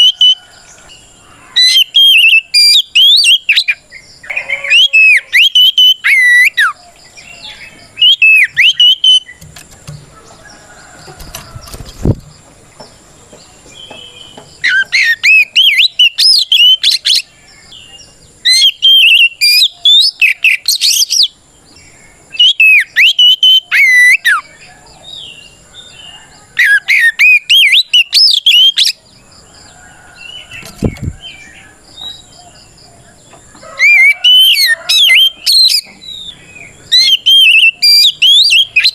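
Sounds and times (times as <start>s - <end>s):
bird singing whistled phrases: 1.6s - 6.8s, 7.4s - 9.4s, 14.6s - 17.3s, 18.4s - 21.3s, 22.4s - 24.5s, 26.6s - 29.0s, 36.9s - 38.9s.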